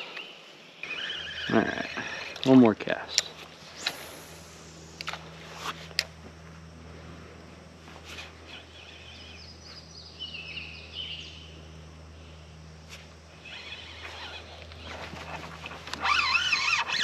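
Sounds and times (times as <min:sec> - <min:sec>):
bird calling high notes: 0:00.0 - 0:02.5
steady low hum: 0:00.0 - 0:17.0.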